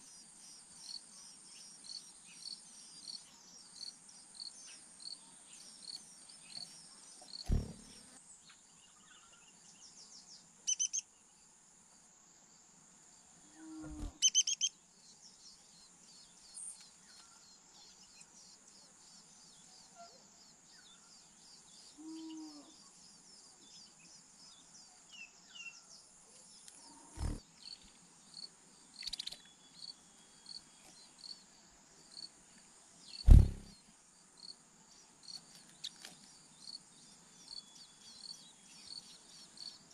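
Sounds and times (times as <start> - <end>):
crickets chorus: 0.0 - 8.1, 8.9 - 39.9
bird chirps: 9.0 - 11.1, 14.0 - 14.7, 29.0 - 31.1
sudden low thumps: 33.3 - 33.7.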